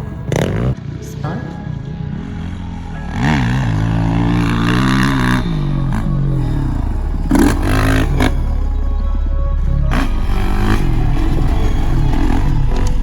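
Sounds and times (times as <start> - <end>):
dirt bike engine revving: 0.0 - 0.9, 2.0 - 13.0
clattering scraping burst: 3.4 - 13.0.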